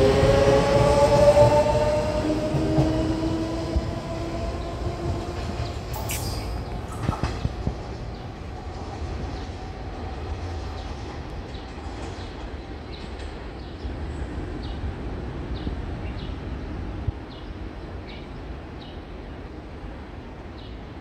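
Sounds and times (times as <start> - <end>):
train rumbling: 0.0 - 21.0
short high chirps: 6.0 - 6.8.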